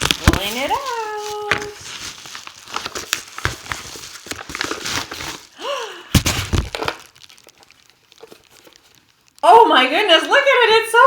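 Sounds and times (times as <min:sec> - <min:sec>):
packaging rustling and crinkling: 0:00.0 - 0:09.4.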